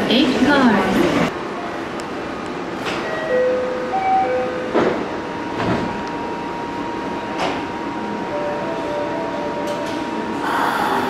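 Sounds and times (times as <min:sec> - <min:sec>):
train high whine: 0:00.0 - 0:11.0.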